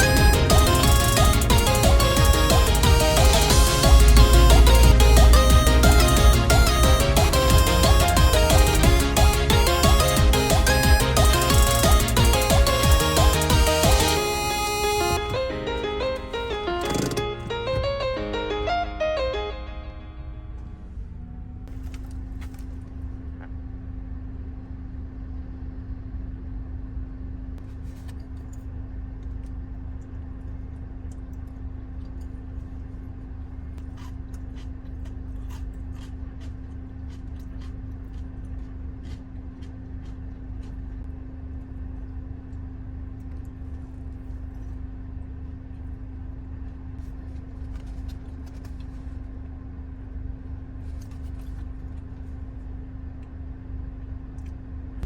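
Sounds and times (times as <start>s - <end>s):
car engine running: 0.0s - 17.8s.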